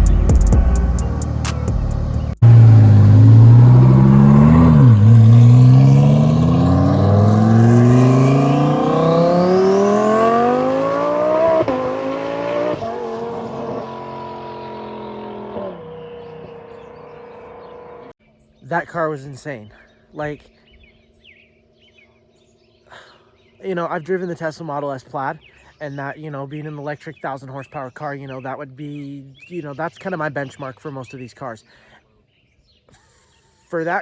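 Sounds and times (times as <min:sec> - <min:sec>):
sports car accelerating: 0:00.0 - 0:18.1.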